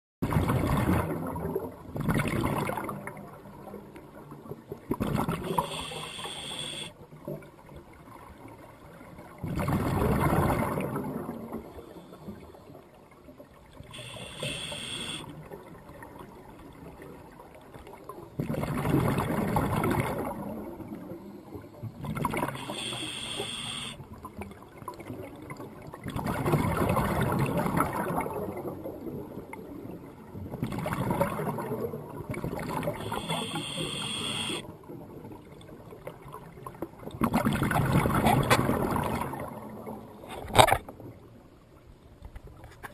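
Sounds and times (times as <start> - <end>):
short high creak: 14.0 - 15.2
sea water surging: 18.4 - 24.0.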